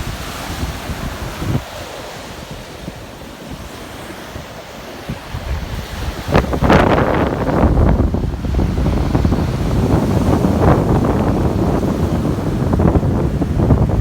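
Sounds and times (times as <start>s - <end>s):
surf washing onto beach: 0.0s - 14.0s
wind buffeting microphone: 0.0s - 14.0s.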